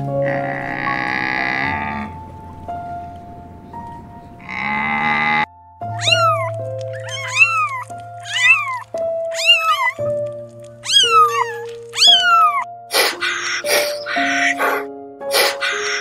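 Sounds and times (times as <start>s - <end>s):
hoarse animal call: 0.0s - 2.3s, 4.4s - 16.0s
soft piano music: 0.0s - 16.0s
kitten meowing: 5.9s - 16.0s.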